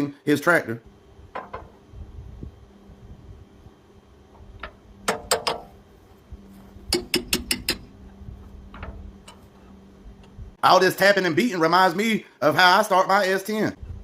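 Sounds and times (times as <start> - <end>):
metallic taps on cartridge starter: 4.6 - 5.7, 6.9 - 7.9.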